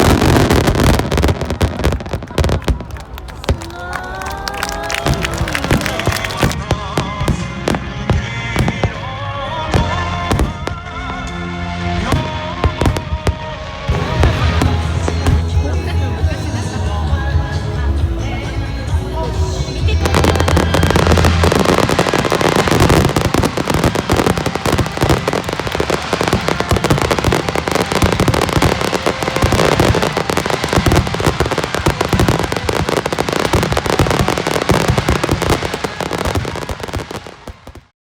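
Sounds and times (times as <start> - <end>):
fireworks bursts and crackles: 0.0 - 37.9.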